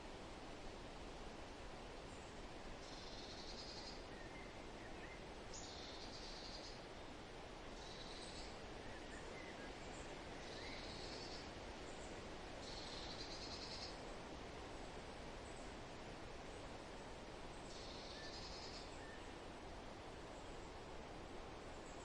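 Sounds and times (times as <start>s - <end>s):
rustling wind: 0.0s - 22.0s
faint bird chirps: 2.2s - 6.8s, 7.8s - 14.0s, 17.6s - 19.4s.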